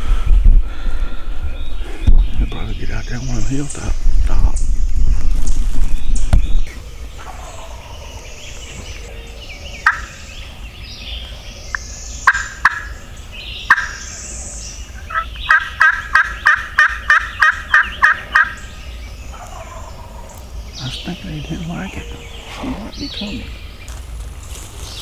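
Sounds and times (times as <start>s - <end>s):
wind rumble on microphone: 0.0s - 11.7s
songbirds chirping: 0.0s - 25.0s
turkey yelps: 9.8s - 10.1s, 12.3s - 12.9s, 13.7s - 14.0s, 15.0s - 18.6s, 19.3s - 20.4s.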